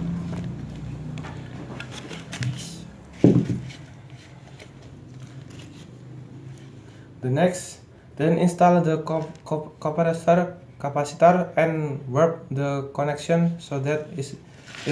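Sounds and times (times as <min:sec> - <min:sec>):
sharp knock: 0:03.2 - 0:03.7.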